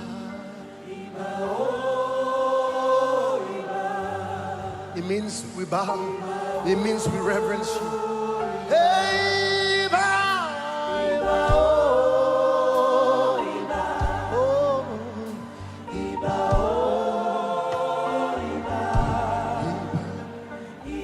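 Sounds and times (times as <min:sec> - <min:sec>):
choir singing held notes: 0:00.0 - 0:21.0
sustained bass accompaniment: 0:11.2 - 0:12.3, 0:13.7 - 0:17.1, 0:18.4 - 0:21.0.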